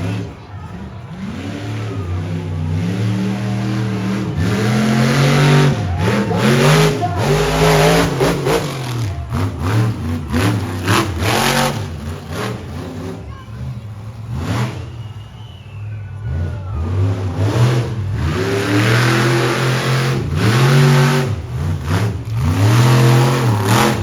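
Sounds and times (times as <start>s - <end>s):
monster truck engine revving: 0.0s - 24.0s.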